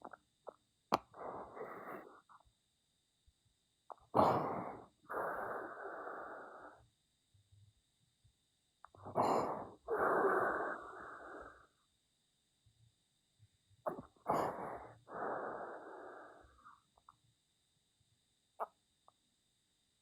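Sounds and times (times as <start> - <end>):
person breathing heavily: 1.1 - 2.2, 4.2 - 6.8, 9.0 - 11.7, 14.3 - 16.8.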